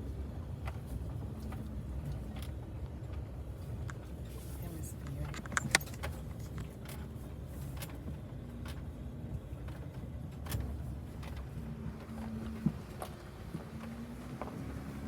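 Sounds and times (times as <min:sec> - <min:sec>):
vehicle cabin rumble: 0:00.0 - 0:15.0
small clicks and rattles: 0:00.6 - 0:09.0.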